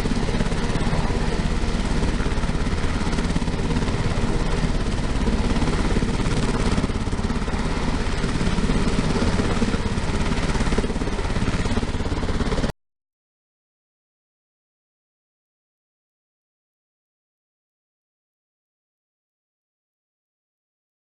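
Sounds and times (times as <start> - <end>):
helicopter turbine and rotor noise: 0.0 - 12.7.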